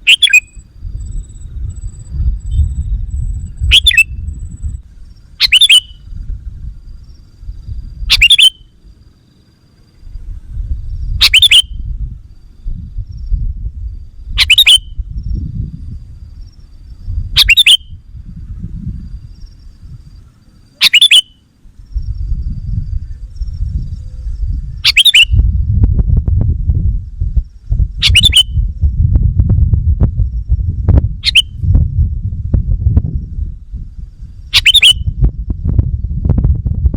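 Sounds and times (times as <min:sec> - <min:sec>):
bird giving sharp calls: 0:00.0 - 0:00.6, 0:03.6 - 0:04.2, 0:05.3 - 0:06.1, 0:08.1 - 0:08.8, 0:11.2 - 0:11.8, 0:14.4 - 0:15.0, 0:17.3 - 0:18.0, 0:20.7 - 0:21.4, 0:24.8 - 0:25.4, 0:28.0 - 0:28.6, 0:31.2 - 0:31.6, 0:34.5 - 0:35.1
low rumbling noise: 0:00.0 - 0:09.3, 0:09.9 - 0:20.8, 0:21.5 - 0:36.9.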